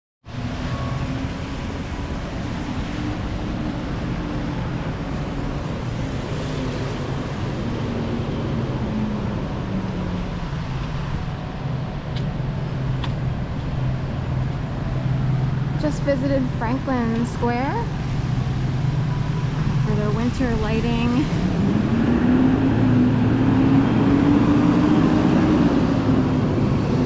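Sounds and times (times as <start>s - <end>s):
traffic and tyre noise: 0.3s - 27.0s.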